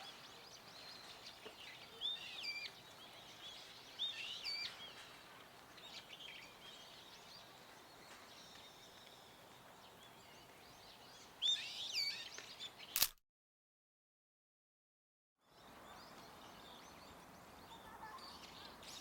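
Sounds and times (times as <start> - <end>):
bird shrill calls: 0.0 - 5.1
outdoor background noise: 0.0 - 13.2, 15.4 - 19.0.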